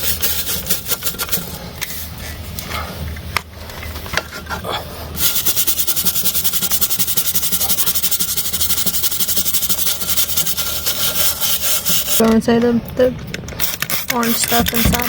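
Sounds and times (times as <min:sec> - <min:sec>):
brush scrubbing metal: 0:00.0 - 0:02.3, 0:05.2 - 0:12.2, 0:13.6 - 0:15.0.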